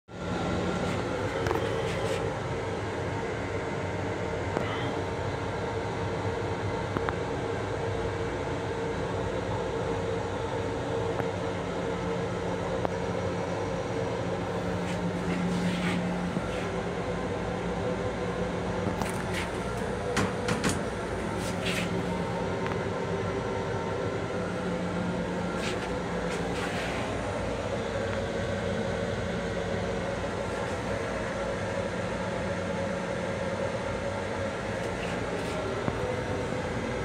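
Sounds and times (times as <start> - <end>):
low electrical hum: 0.1 - 37.0
train interior rumble: 34.6 - 37.0.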